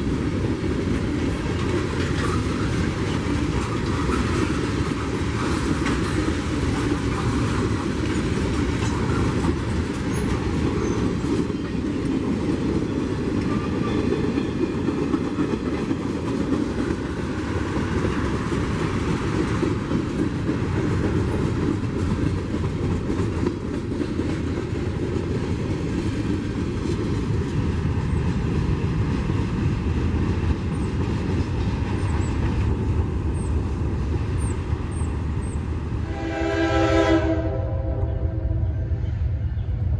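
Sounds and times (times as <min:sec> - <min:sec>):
train wheels rumbling on rails: 0:00.0 - 0:39.9
clicks from rail joints: 0:01.5 - 0:10.4.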